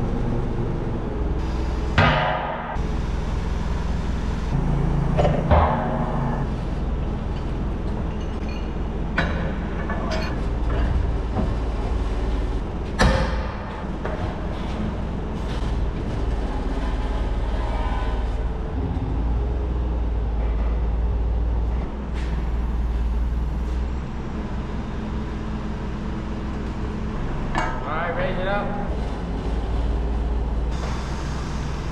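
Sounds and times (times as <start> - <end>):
forklift engine running: 0.0 - 31.9
loud metal bang: 2.0 - 2.8, 4.6 - 6.6
metal clanks: 7.3 - 11.6.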